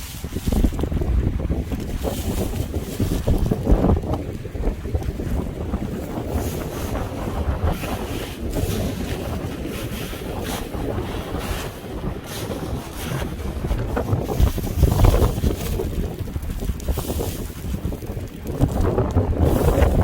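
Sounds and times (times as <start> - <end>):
sea waves washing: 0.0 - 20.0
wind buffeting microphone: 0.0 - 20.0.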